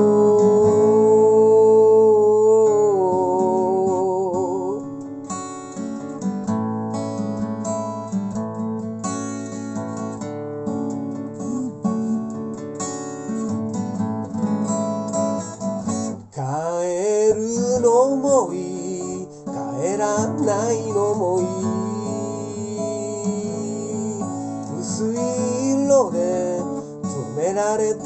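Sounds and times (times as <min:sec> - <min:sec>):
person singing with vibrato: 0:00.0 - 0:04.9, 0:11.4 - 0:12.4, 0:16.3 - 0:28.0
acoustic guitar: 0:00.0 - 0:28.0.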